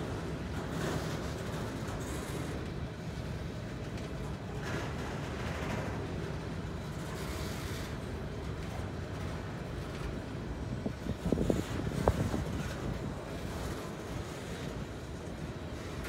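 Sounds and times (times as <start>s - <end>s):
steel wheels rumbling on rails: 0.0s - 16.0s.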